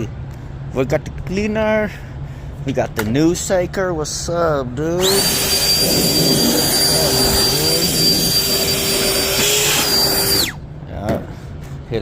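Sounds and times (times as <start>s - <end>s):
battery blower whining: 5.0s - 10.7s.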